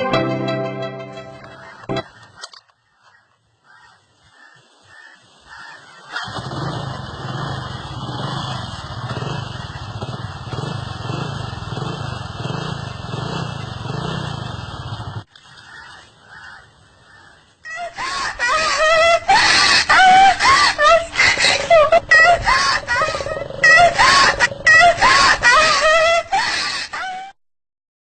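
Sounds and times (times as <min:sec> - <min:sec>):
motorcycle engine running: 0:06.2 - 0:15.3.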